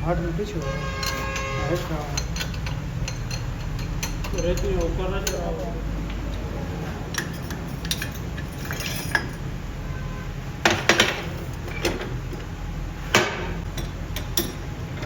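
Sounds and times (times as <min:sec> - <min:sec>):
steady low hum: 0:00.0 - 0:15.0
metal parts clinking: 0:00.9 - 0:05.5, 0:07.1 - 0:09.4.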